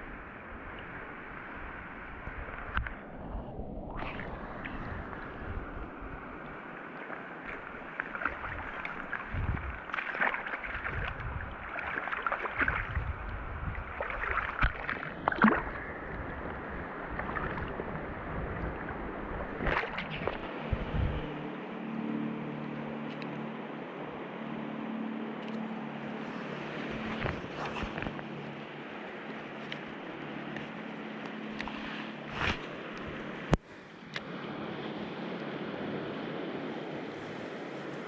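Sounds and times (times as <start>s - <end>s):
low steady hum: 0.0s - 38.0s
stream water running: 0.0s - 38.0s
knocks or splashes: 7.5s - 13.1s, 14.0s - 15.9s, 19.6s - 21.2s.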